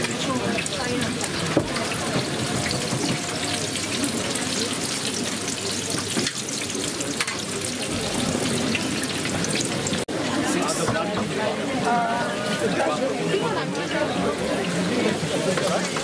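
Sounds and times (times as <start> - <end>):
pancakes sizzling in hot oil: 0.0 - 10.3.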